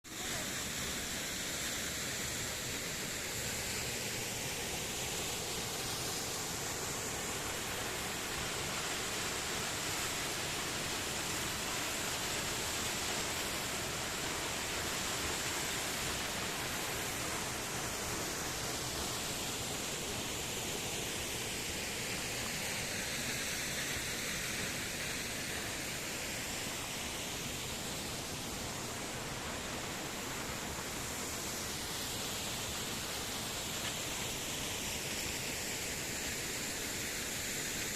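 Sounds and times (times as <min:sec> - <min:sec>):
waterfall rushing: 0:00.1 - 0:37.9.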